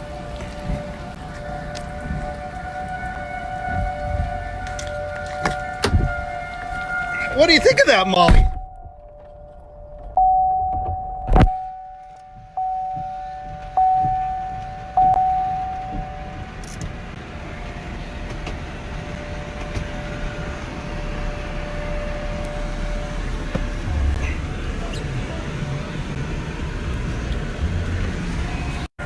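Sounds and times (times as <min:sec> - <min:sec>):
low vehicle hum: 0:00.0 - 0:29.0
vehicle two-note warning chime: 0:07.3 - 0:17.1, 0:19.0 - 0:24.9
sharp thump: 0:08.3 - 0:08.9.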